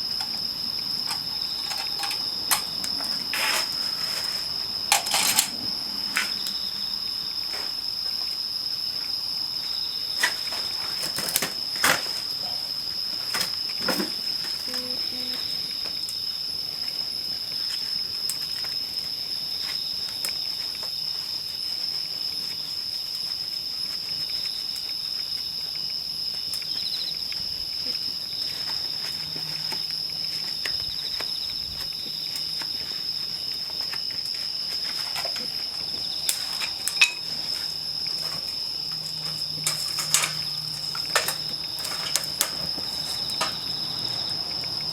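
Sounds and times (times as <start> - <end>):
insect trill: 0.0 - 44.9
campfire crackling and popping: 34.2 - 44.9.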